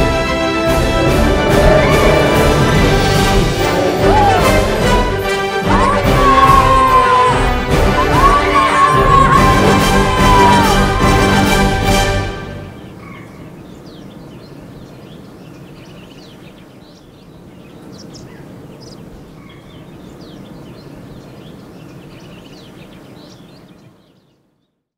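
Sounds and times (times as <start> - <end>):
small birds chirping: 12.8 - 24.9.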